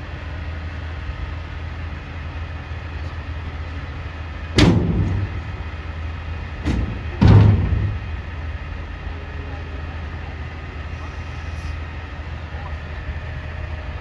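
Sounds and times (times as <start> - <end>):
garbage truck engine running: 0.0 - 14.0
loud bangs: 4.6 - 6.0, 6.6 - 8.5.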